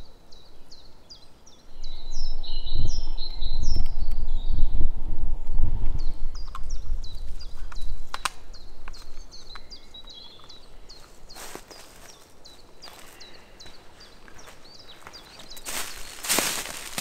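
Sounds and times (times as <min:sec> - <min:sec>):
low rumbling on microphone: 0:01.7 - 0:10.6.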